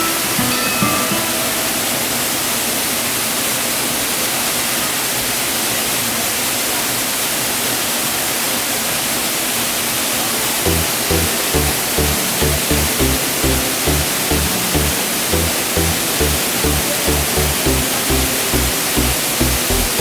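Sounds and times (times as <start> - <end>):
waterfall rushing: 10.7 - 20.0.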